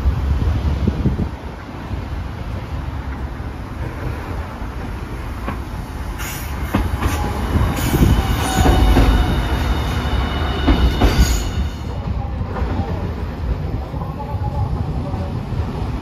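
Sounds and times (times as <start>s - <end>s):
high wheel squeal: 6.2s - 11.9s.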